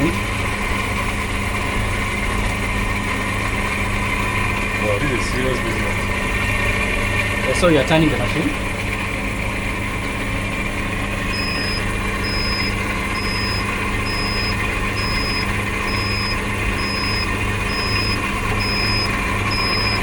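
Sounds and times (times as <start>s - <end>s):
incubator electric hum: 0.0s - 20.0s
short high electronic beep: 11.4s - 20.0s.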